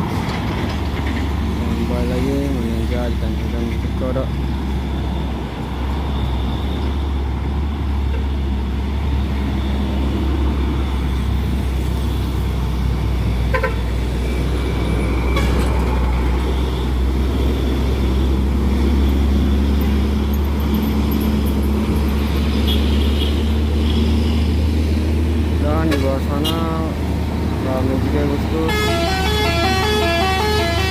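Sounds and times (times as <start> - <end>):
truck engine droning uphill: 23.4 - 30.9.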